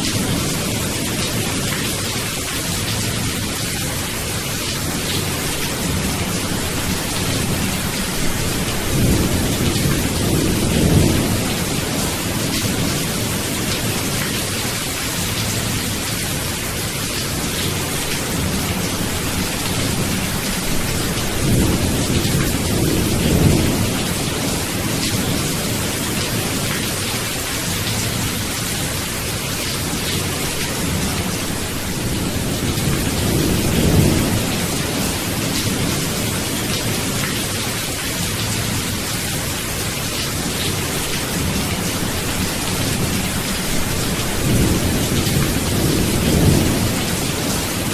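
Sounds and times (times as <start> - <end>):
heavy rain: 0.0 - 47.9
thunder rumbles: 5.2 - 14.2, 18.3 - 26.7, 30.7 - 37.3, 41.4 - 47.9.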